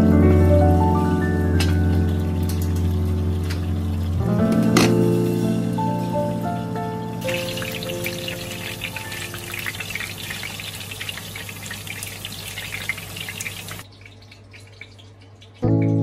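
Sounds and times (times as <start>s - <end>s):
potatoes sizzling in oil: 7.2s - 13.8s.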